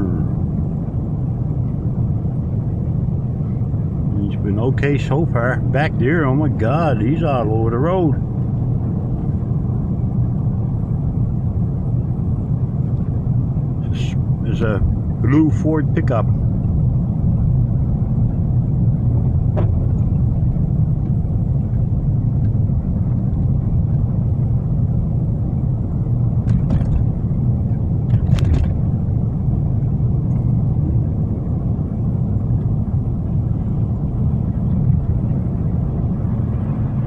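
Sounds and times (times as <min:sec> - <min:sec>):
car engine and tyres rumbling: 0:00.0 - 0:37.0.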